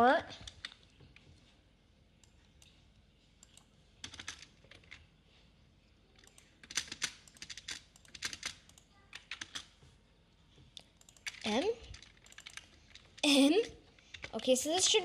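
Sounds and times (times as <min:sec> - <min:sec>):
computer keyboard typing: 0:03.4 - 0:05.1, 0:06.2 - 0:09.8, 0:10.9 - 0:14.6.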